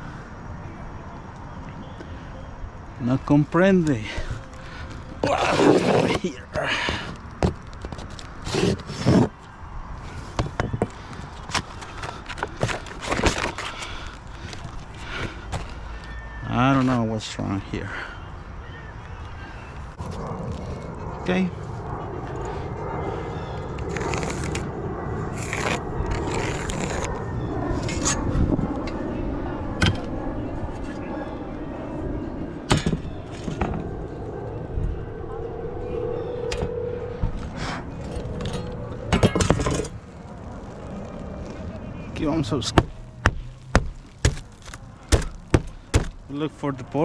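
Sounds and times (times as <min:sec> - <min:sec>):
scraping on a shingled roof: 0:05.2 - 0:09.4, 0:10.3 - 0:15.7, 0:23.9 - 0:24.7, 0:25.3 - 0:27.2
steady low rumble: 0:19.2 - 0:47.0.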